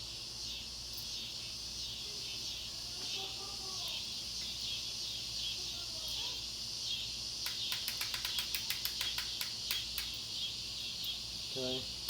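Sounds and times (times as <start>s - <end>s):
crickets chirring: 0.0s - 12.0s
sharp clicks: 7.4s - 10.2s.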